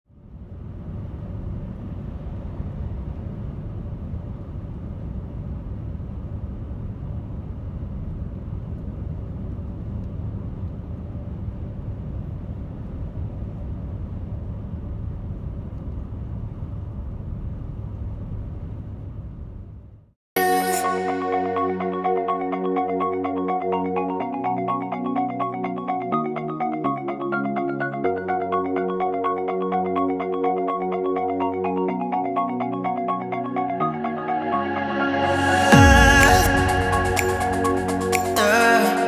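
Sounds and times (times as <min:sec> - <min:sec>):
low rumble of noise: 0:00.1 - 0:20.1, 0:33.5 - 0:38.8.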